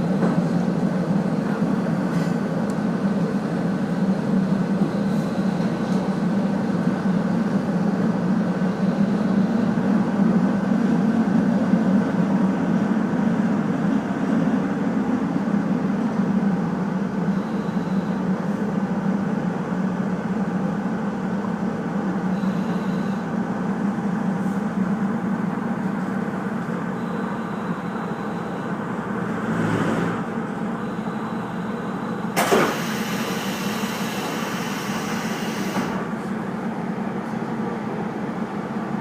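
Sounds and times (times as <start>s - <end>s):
train wheels on rails: 0.0s - 7.1s, 31.6s - 39.0s
diesel railcar engine hum: 0.0s - 39.0s.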